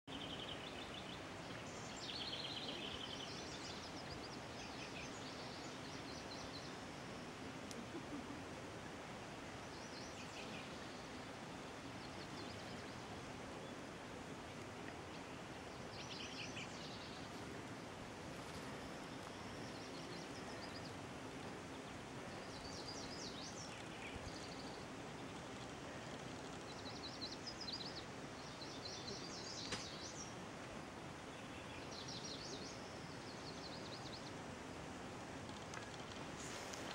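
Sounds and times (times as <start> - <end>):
small birds singing: 0.1 - 7.3, 15.1 - 17.4, 18.5 - 34.4
outdoor background hiss: 0.1 - 36.9.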